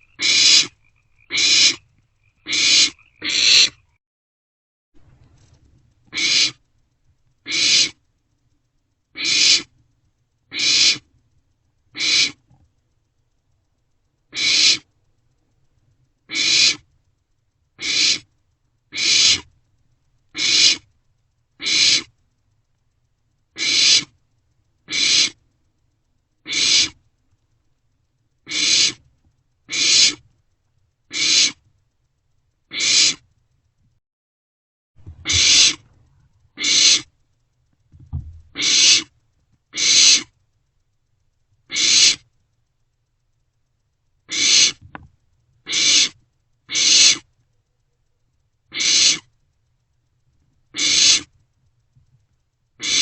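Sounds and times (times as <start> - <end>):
owlets hissing screech calls: 0.0 - 1.8, 2.4 - 3.9, 6.1 - 6.6, 7.5 - 8.0, 9.2 - 9.7, 10.5 - 11.1, 12.0 - 12.4, 14.3 - 14.8, 16.3 - 16.9, 17.8 - 18.3, 18.9 - 19.5, 20.4 - 20.9, 21.6 - 22.1, 23.6 - 24.1, 24.9 - 25.4, 26.5 - 27.0, 28.5 - 29.0, 29.7 - 30.2, 31.1 - 31.6, 32.7 - 33.2, 35.1 - 35.9, 36.6 - 37.1, 38.6 - 39.1, 39.7 - 40.3, 41.7 - 42.3, 44.3 - 44.8, 45.7 - 47.3, 48.7 - 49.3, 50.7 - 51.3, 52.8 - 53.0.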